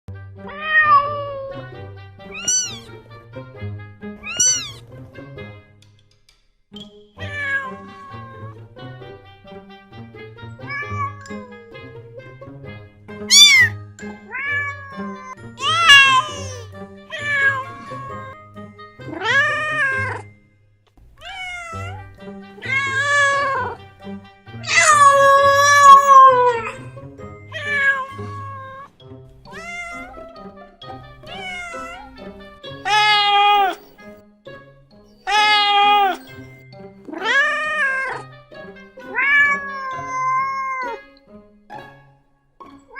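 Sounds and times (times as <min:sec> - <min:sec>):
background music: 0:00.1 - 0:42.9
cat meowing: 0:00.5 - 0:01.7, 0:02.3 - 0:02.9, 0:04.2 - 0:04.8, 0:07.2 - 0:08.6, 0:10.6 - 0:12.3, 0:13.3 - 0:18.4, 0:19.0 - 0:20.3, 0:21.2 - 0:23.8, 0:24.6 - 0:26.9, 0:27.5 - 0:28.9, 0:29.5 - 0:30.6, 0:31.2 - 0:33.9, 0:35.2 - 0:36.3, 0:37.1 - 0:38.3, 0:39.0 - 0:41.1.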